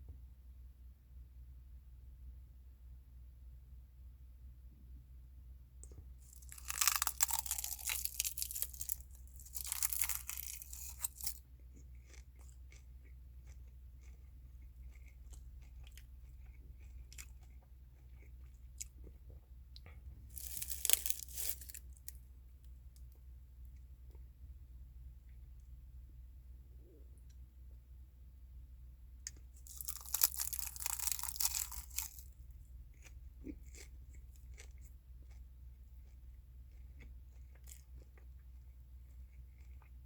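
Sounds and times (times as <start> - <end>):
chewing and crunching food: 5.8 - 24.3, 29.2 - 40.0.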